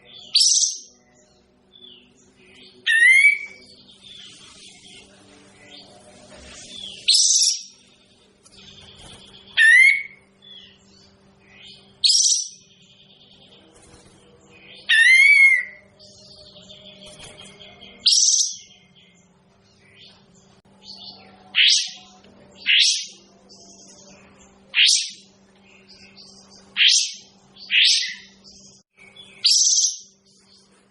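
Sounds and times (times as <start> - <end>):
faint steady hum: 0.0 - 30.9
songbird calling: 1.8 - 5.0, 9.3 - 10.8, 14.6 - 16.9, 20.9 - 30.2.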